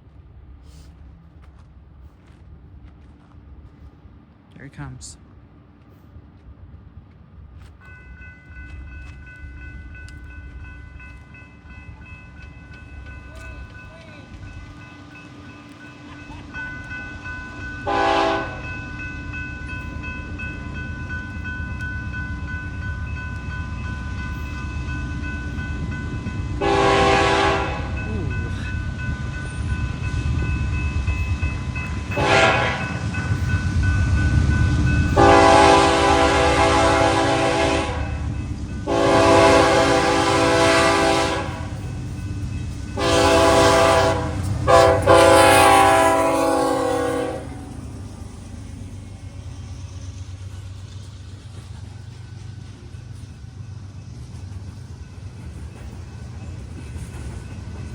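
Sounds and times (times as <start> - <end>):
train engine and wheels rumbling: 0.0 - 57.9
train horn blasts: 17.8 - 18.7, 26.6 - 28.0, 32.1 - 33.1, 35.1 - 41.8, 43.0 - 47.8.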